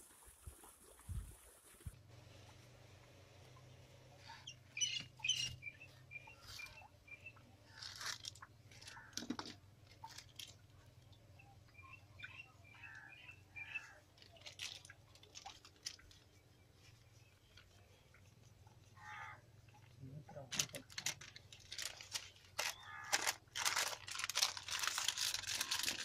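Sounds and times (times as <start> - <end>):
small birds chirping: 3.5 - 9.2, 9.9 - 23.2
plastic packet crackling and tearing: 7.8 - 10.6, 14.2 - 16.2, 20.5 - 26.0.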